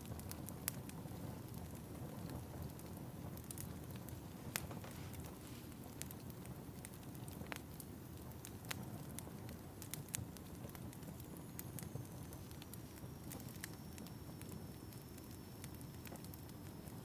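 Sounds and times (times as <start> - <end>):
wood fire crackling: 0.0 - 17.0
faint high whistle: 11.3 - 17.0.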